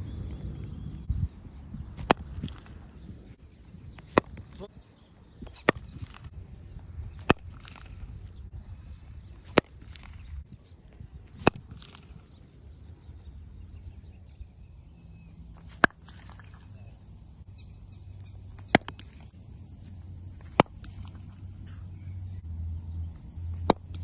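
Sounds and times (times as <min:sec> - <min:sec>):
cricket bat striking ball: 0:01.9 - 0:03.2, 0:03.9 - 0:04.7, 0:05.4 - 0:06.3, 0:07.1 - 0:08.4, 0:09.3 - 0:10.3, 0:11.3 - 0:12.3, 0:15.6 - 0:16.7, 0:18.4 - 0:19.6, 0:20.3 - 0:22.3, 0:23.6 - 0:24.0.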